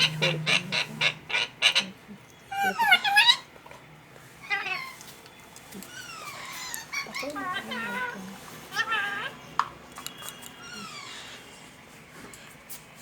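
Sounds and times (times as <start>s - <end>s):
parrot squawking: 0.0s - 3.5s
parrot warbling chirps: 0.0s - 3.5s.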